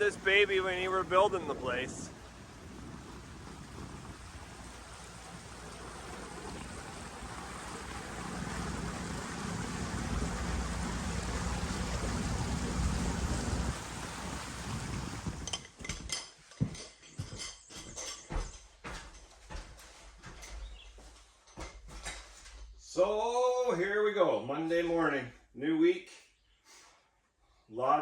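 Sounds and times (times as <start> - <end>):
outboard motor running: 0.0 - 15.4
rush of wind and water: 0.0 - 16.2.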